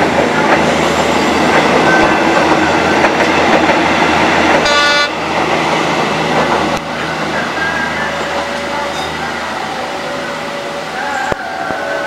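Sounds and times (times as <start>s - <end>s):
train engines and wheels rumbling: 0.0s - 12.0s
train horn blast: 4.6s - 5.2s.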